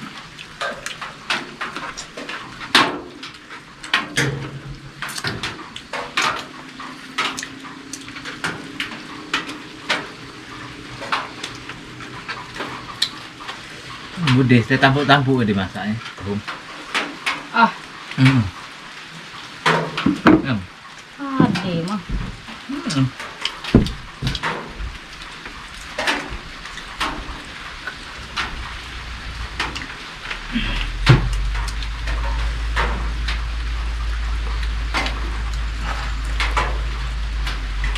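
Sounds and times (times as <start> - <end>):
rain falling: 0.0 - 37.9
sharp clicks and knocks: 21.4 - 28.7
low rumble: 21.4 - 37.9.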